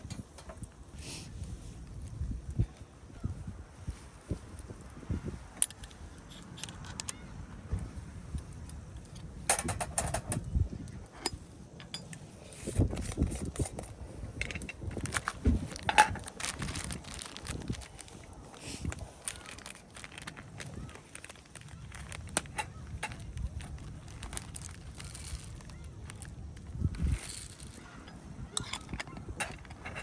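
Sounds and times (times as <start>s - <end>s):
small hard objects clinking: 11.8s - 30.0s.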